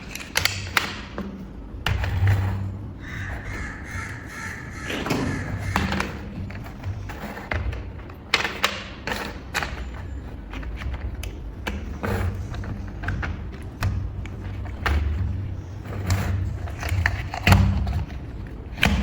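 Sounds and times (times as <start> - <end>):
plastic bricks clicking together: 0.0 - 1.2.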